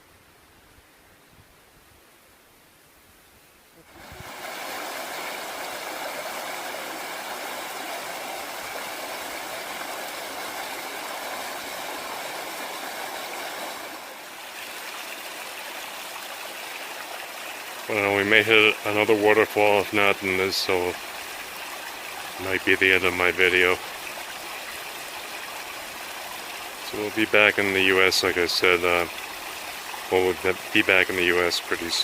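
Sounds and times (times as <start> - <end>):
stream water rushing: 3.8 - 32.0.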